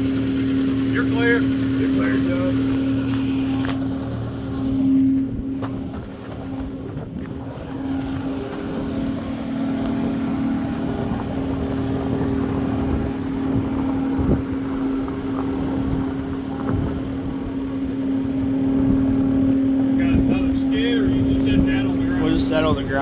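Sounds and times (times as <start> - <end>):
lifting equipment engine running: 0.0 - 23.0.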